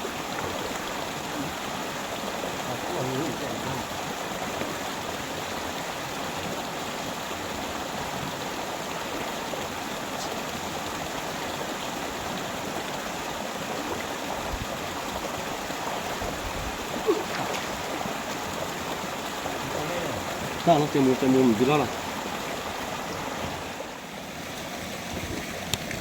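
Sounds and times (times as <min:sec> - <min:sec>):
flowing river water: 0:00.0 - 0:26.0.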